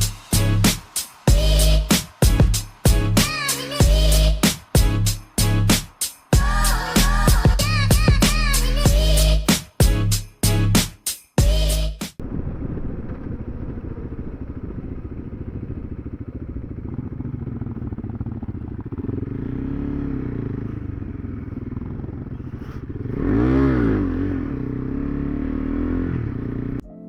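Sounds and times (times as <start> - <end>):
motorcycle engine revving: 12.2 - 26.8.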